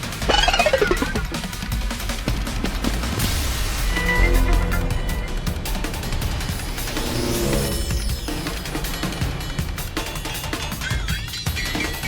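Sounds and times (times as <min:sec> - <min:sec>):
soundtrack music with heavy bass: 0:00.2 - 0:01.4.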